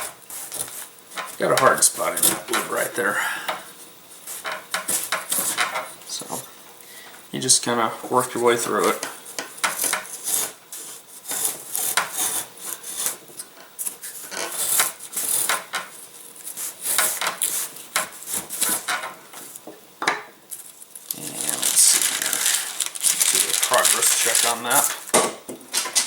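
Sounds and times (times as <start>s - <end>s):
hand plane shaving wood: 9.8s - 13.2s.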